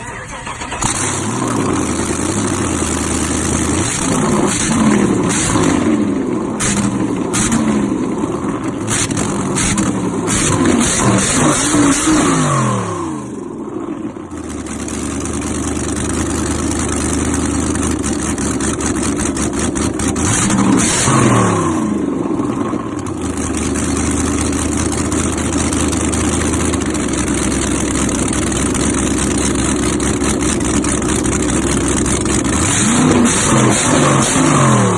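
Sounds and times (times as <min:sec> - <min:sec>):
car engine revving high: 0:00.8 - 0:13.4, 0:19.9 - 0:22.6, 0:32.3 - 0:34.9.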